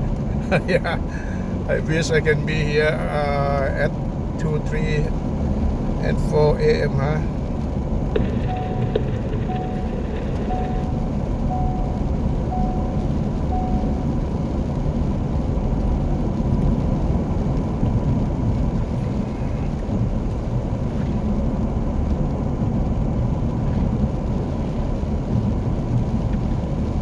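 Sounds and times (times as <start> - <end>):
car cabin rumble: 0.0 - 27.0
short beeps: 8.2 - 14.3.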